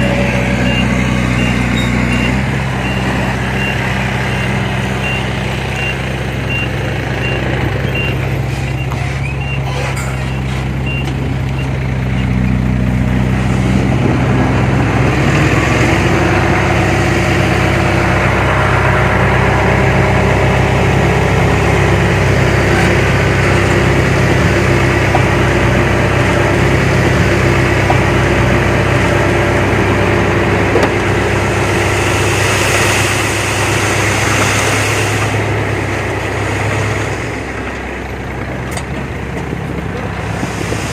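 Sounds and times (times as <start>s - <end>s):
reversing alarm beeping: 0.0s - 12.3s
heavy diesel machinery running: 0.0s - 40.9s.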